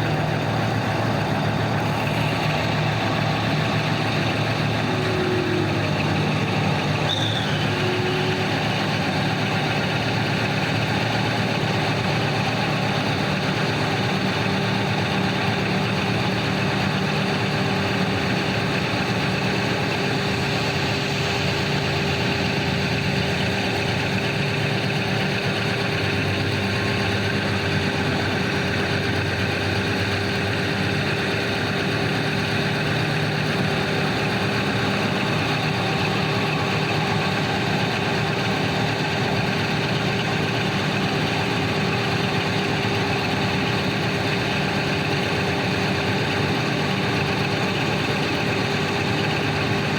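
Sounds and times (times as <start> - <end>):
heavy diesel engines running: 0.0 - 49.9.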